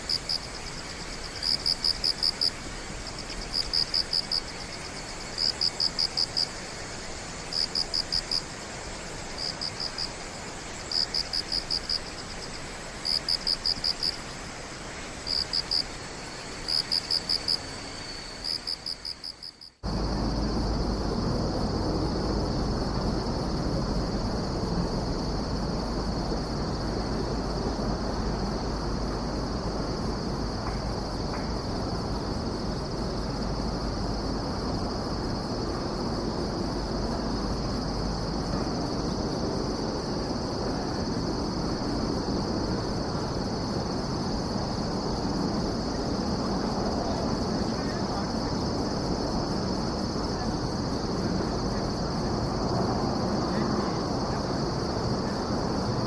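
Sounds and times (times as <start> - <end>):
insects chirping: 0.0 - 56.0
insect high trill: 15.2 - 21.6.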